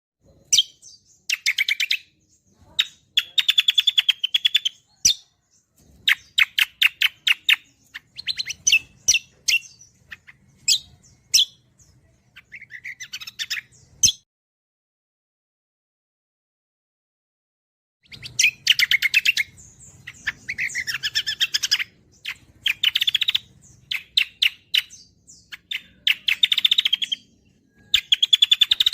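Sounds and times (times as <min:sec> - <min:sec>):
songbird chirping and trilling: 0:00.2 - 0:14.3, 0:18.0 - 0:28.9.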